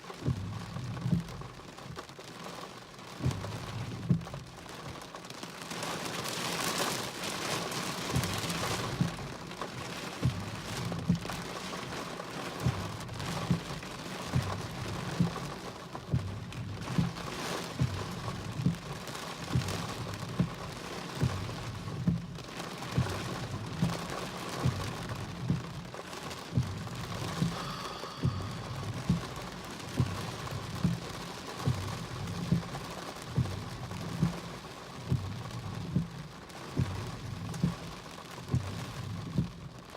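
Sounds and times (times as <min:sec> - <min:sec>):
rain: 0:00.0 - 0:39.9
low dull knock: 0:26.6 - 0:30.2.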